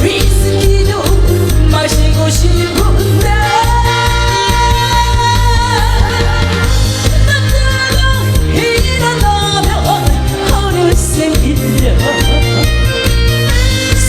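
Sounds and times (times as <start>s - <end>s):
instrumental music with bass beat: 0.0s - 14.0s
person singing: 7.4s - 13.2s.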